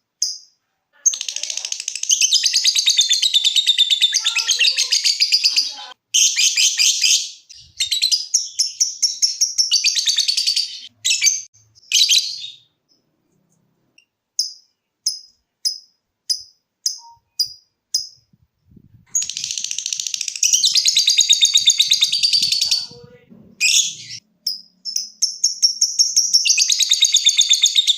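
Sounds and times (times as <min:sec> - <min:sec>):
lovebird ticking chirps: 0:00.2 - 0:04.2, 0:06.2 - 0:13.1, 0:14.0 - 0:18.3, 0:19.1 - 0:22.9, 0:23.6 - 0:27.9
lovebird chattering trills: 0:19.1 - 0:27.9.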